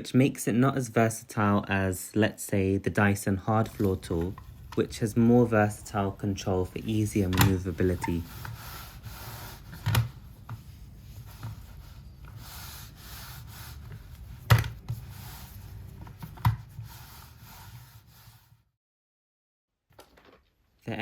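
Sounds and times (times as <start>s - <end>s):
low steady hum: 3.5s - 16.7s
vacuum floor tool scraping floor: 3.6s - 14.2s.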